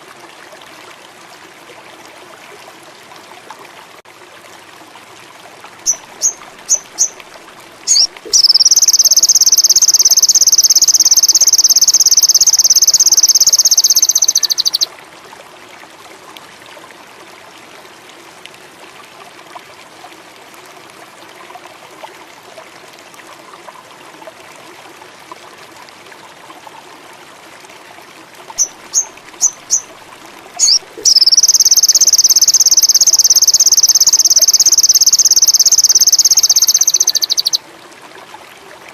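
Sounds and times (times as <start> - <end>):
faint trickling water: 0.0 - 38.9
bird song with high trill: 5.9 - 7.2, 7.9 - 14.9, 30.6 - 37.6.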